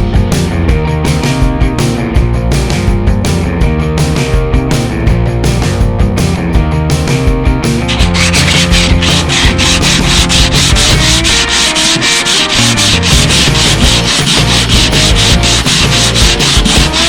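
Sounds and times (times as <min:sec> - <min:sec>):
sanding metal hull: 0:07.9 - 0:17.0.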